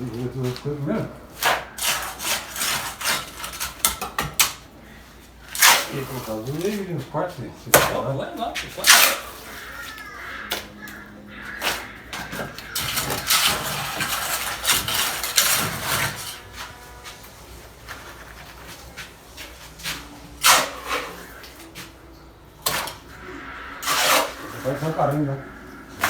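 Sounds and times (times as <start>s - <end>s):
trowel scraping mortar: 1.3s - 4.5s, 5.5s - 6.8s, 8.5s - 9.8s, 11.6s - 18.8s, 19.4s - 21.8s, 22.6s - 26.0s.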